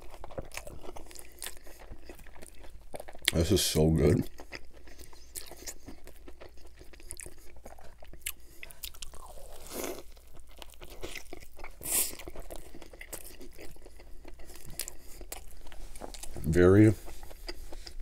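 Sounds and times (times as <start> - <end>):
chewing and biting burger: 0.0 - 18.0
small crunches: 7.5 - 18.0.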